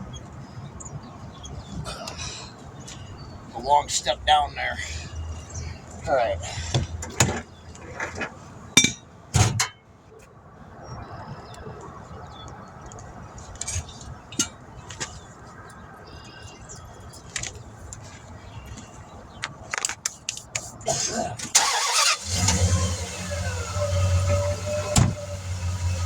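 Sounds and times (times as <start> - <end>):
engine starting and idling: 21.5 - 26.0.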